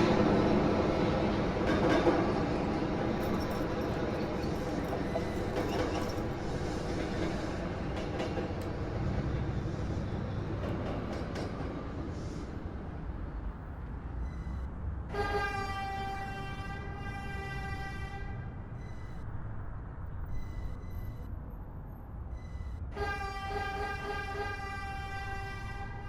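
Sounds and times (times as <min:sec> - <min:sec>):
rail clicks: 0:00.0 - 0:12.2
subway wheels rumbling on rail: 0:00.0 - 0:14.3, 0:15.1 - 0:19.2, 0:23.0 - 0:26.0.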